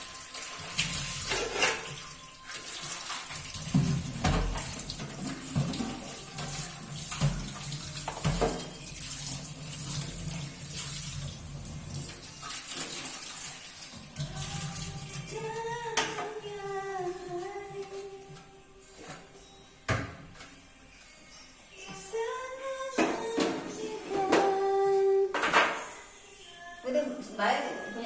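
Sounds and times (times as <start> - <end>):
water running from a tap: 0.0 - 15.8
items knocking and clattering: 0.6 - 2.2, 3.3 - 9.2, 23.0 - 24.6, 25.3 - 25.9.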